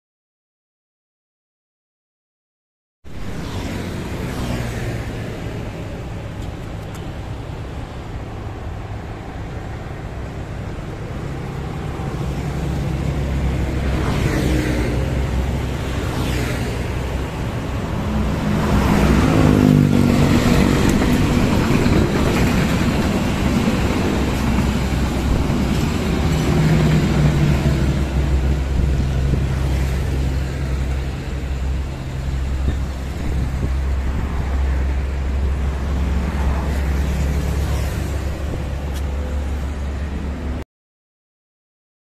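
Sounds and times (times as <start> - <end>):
diesel locomotive engine: 3.1 - 40.6
coaches rumbling on rails: 3.2 - 40.6.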